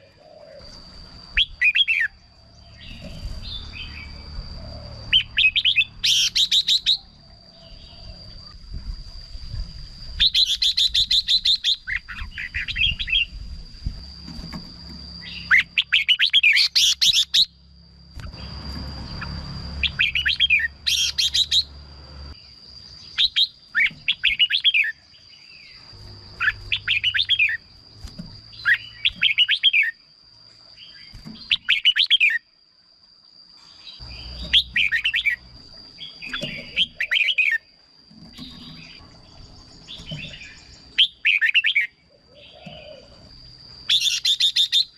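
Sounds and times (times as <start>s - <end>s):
faint high whine: 0.0s - 44.9s
bird singing chirpy phrases: 22.4s - 30.0s.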